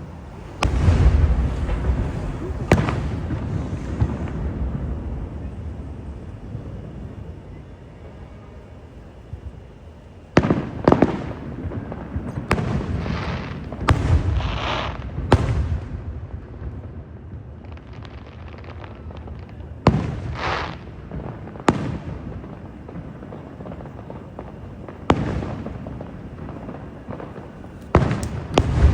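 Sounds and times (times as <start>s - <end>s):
firework shells bursting: 0.0s - 7.4s, 17.6s - 28.9s
rumbling echo: 0.0s - 7.9s
firework crackling hiss: 0.0s - 28.9s.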